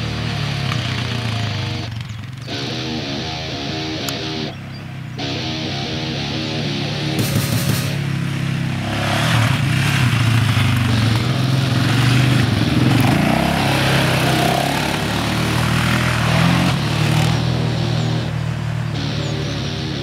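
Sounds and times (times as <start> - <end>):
quad bike engine running: 0.0 - 20.0.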